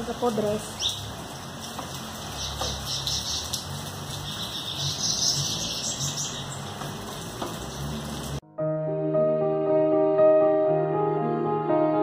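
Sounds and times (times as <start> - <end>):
light rain pattering: 0.0 - 8.4.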